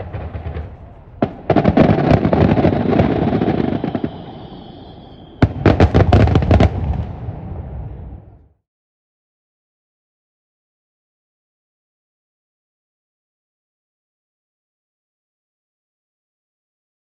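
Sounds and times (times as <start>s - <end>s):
fireworks crackling bangs: 0.0s - 8.4s
thin whistling tone: 3.1s - 5.9s.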